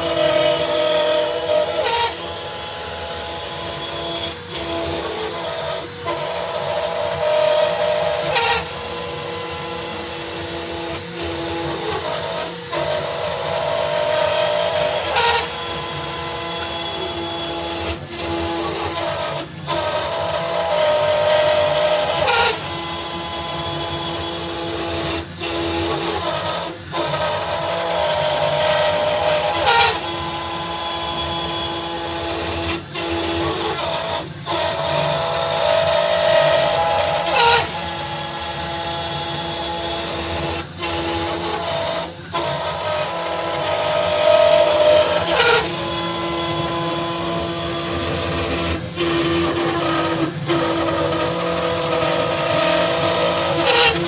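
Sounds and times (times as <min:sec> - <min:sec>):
cnc router spindle whine: 0:00.0 - 0:54.0.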